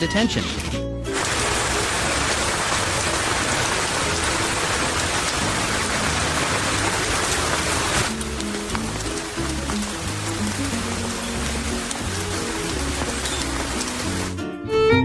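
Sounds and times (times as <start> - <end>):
faint music: 0.0 - 15.0
water hissing: 1.1 - 14.4
faint pattering ticks: 8.0 - 14.4.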